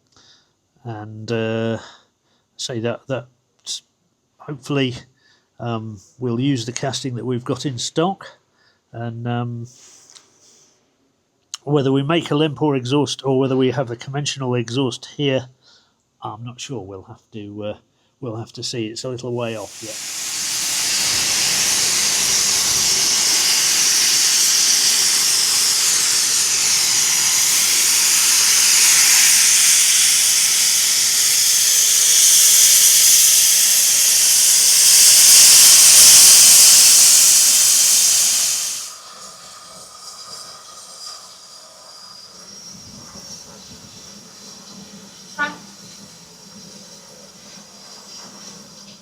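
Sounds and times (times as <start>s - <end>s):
steam locomotive hissing steam: 19.3s - 49.0s.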